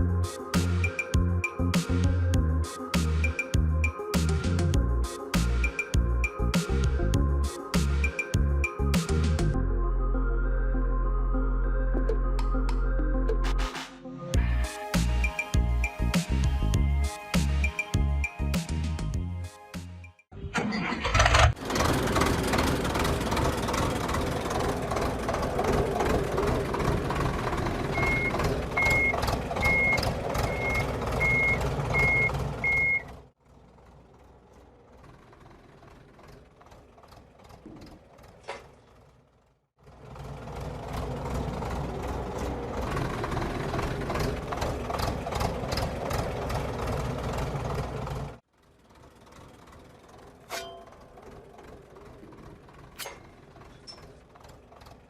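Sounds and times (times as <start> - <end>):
tractor engine running: 20.4 - 55.0
reversing beeper: 27.9 - 33.1.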